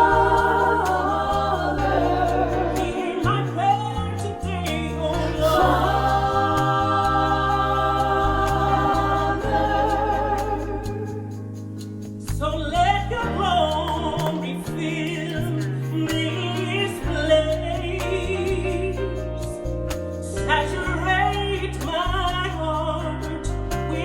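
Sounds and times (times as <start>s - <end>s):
sustained chords: 0.0s - 4.3s
women singing gospel: 0.0s - 19.2s
bass guitar: 0.0s - 24.0s.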